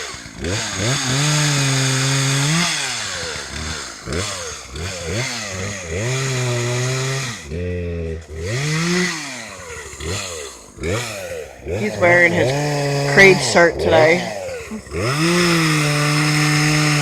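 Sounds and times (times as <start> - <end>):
chainsaw revving: 0.0 - 17.0.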